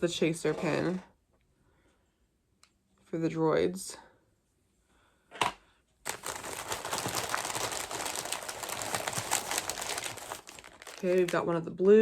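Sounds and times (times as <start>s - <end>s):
plastic packaging crinkling: 6.1s - 11.5s.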